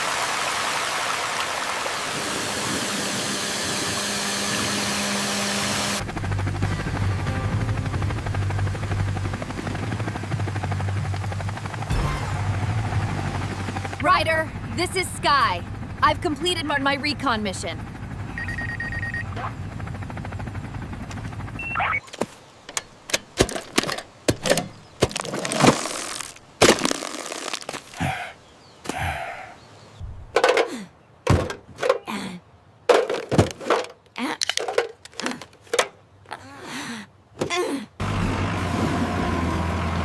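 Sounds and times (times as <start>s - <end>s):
low hum: 2.5s - 22.0s
sharp knocks and thunks: 23.1s - 25.8s, 30.0s - 32.1s, 32.9s - 34.0s.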